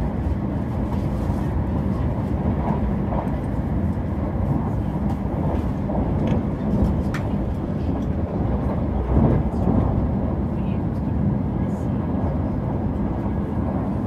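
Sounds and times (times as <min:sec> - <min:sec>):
train rumbling on track: 0:00.0 - 0:14.0.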